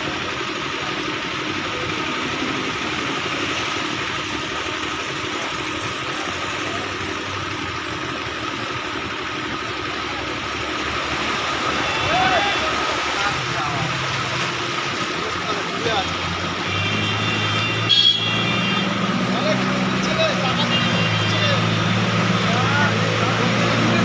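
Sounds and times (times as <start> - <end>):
motor engine running: 0.0 - 24.0.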